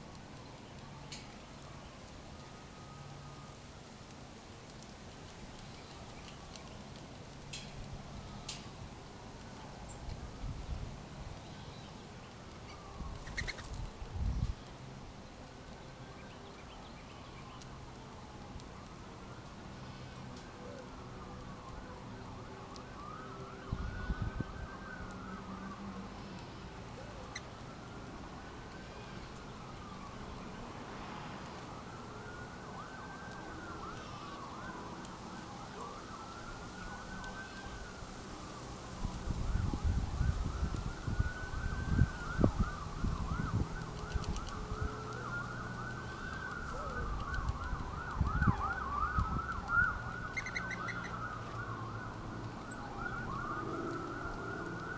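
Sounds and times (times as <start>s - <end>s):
emergency siren wailing: 2.4s - 3.6s, 12.4s - 13.4s, 17.6s - 54.9s
siren yelping sweeps: 31.5s - 38.0s, 39.3s - 54.9s.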